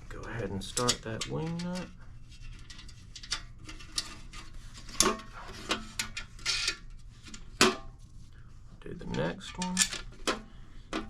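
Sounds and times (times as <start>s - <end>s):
metal parts clinking: 9.2s - 10.2s.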